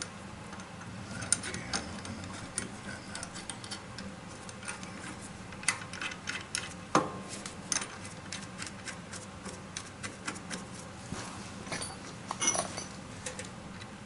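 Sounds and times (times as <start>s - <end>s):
metal parts and tools clinking: 11.7s - 13.5s.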